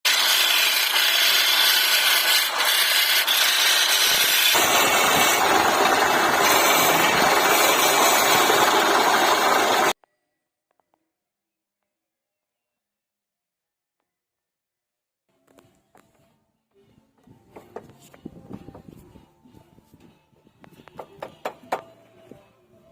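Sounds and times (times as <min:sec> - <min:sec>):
power tools cutting wood: 0:00.1 - 0:10.0.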